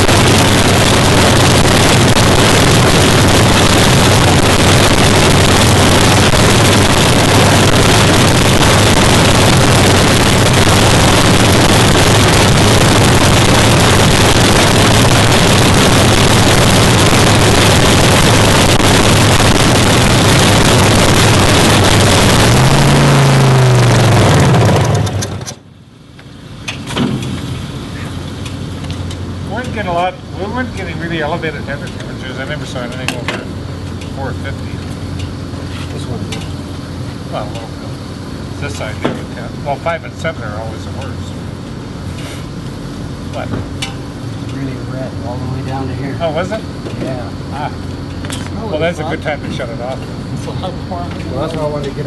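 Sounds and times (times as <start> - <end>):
loud engine idling: 0.0 - 25.6.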